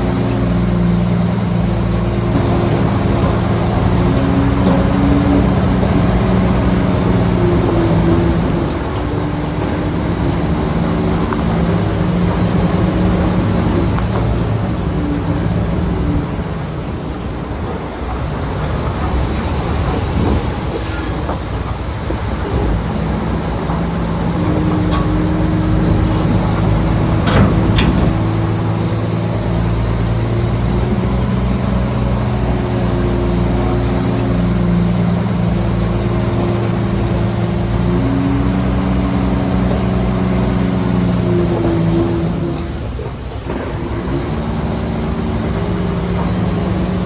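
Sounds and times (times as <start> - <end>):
heavy diesel engine running: 0.0 - 47.0
metallic clank: 23.2 - 29.6.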